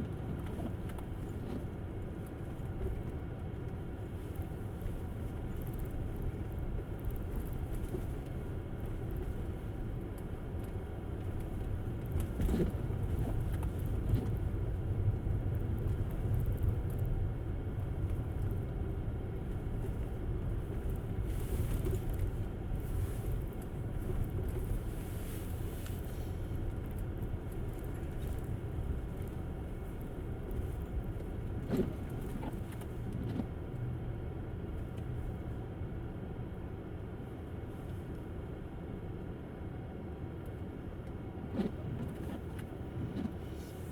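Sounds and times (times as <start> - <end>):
tyre and road rumble: 41.4 - 43.9.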